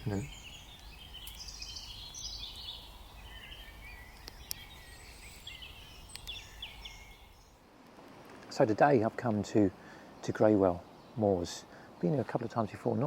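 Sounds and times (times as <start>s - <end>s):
small birds warbling: 0.0s - 7.6s
faint ticks: 4.1s - 4.8s, 6.1s - 6.4s.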